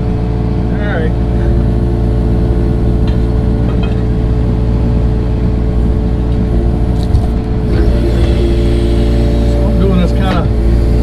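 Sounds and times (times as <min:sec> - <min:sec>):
earthmoving machine engine running: 0:00.0 - 0:11.0
faint knocks: 0:03.0 - 0:04.4.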